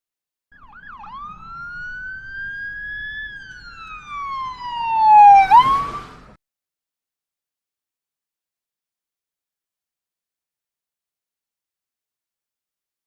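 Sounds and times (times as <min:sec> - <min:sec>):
siren-like sliding tone: 0:00.6 - 0:06.4.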